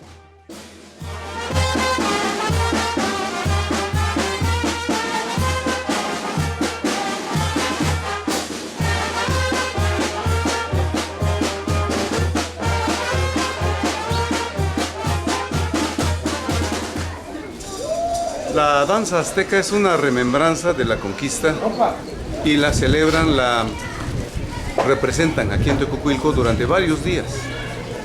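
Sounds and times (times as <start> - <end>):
bass drum beat: 0.0 - 17.2
brass band playing: 0.0 - 17.3.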